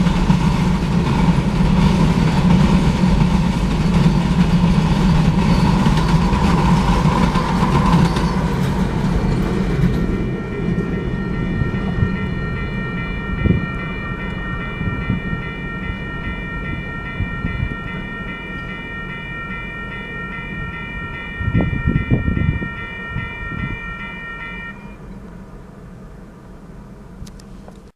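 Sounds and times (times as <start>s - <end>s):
freight train rumbling past: 0.0s - 27.8s
high-pitched tone: 8.0s - 25.0s.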